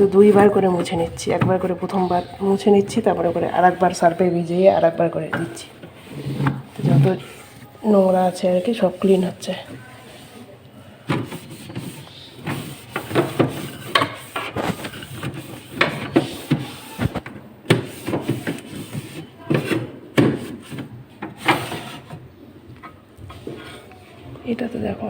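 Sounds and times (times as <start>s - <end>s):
knocks and scrapes on fridge walls: 0.0s - 10.3s, 11.1s - 22.2s
wet cloth wiping plastic: 0.0s - 10.5s, 11.2s - 17.3s.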